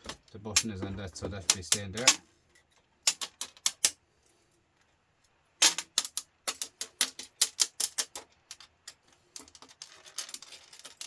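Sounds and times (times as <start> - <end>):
metal parts clicking and clinking: 0.0 - 4.0, 5.6 - 11.0.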